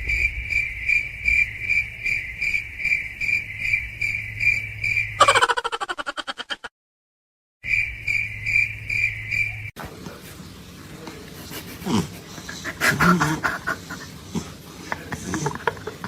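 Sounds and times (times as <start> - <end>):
pulsing chirping tone: 0.0 - 5.4, 7.6 - 9.8.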